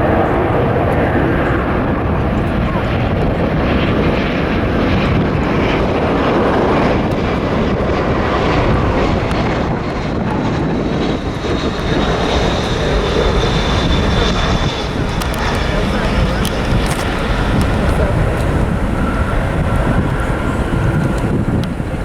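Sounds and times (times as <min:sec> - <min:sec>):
jet airliner engines roaring: 0:00.0 - 0:22.0.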